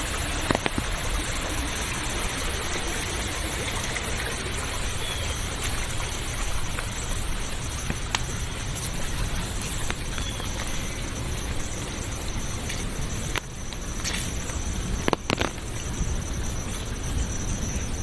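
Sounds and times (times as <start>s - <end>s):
running water: 0.0s - 18.0s.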